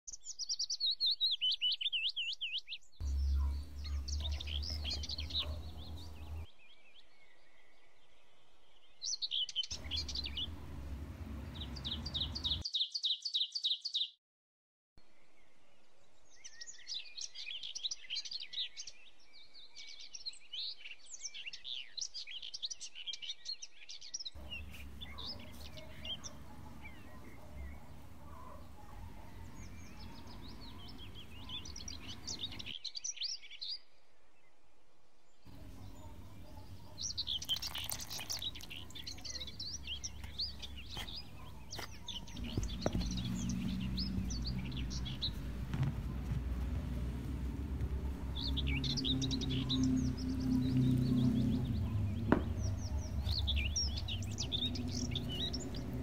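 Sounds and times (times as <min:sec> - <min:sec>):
small birds chirping and trilling: 0:00.1 - 0:14.2, 0:15.2 - 0:34.0, 0:35.4 - 0:56.0
low rumble: 0:42.2 - 0:56.0.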